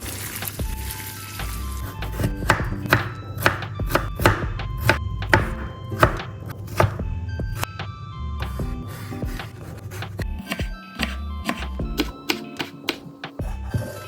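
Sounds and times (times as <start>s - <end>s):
knife chopping on cutting board: 2.1s - 7.0s, 9.0s - 13.1s.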